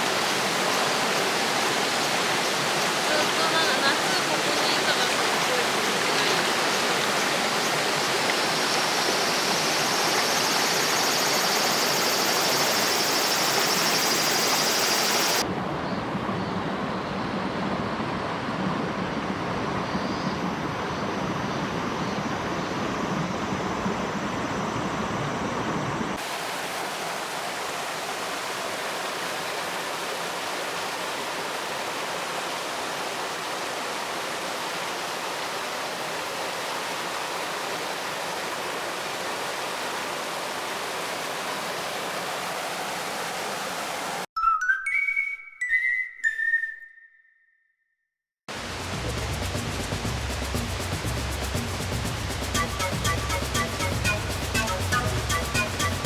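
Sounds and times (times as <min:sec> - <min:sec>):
stream rushing over rocks: 0:00.0 - 0:15.4, 0:26.2 - 0:44.3.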